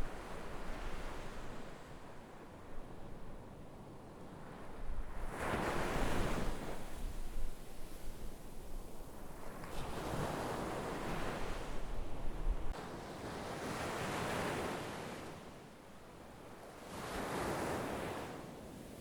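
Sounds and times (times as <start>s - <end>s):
sea waves breaking on shore: 16.8s - 19.0s.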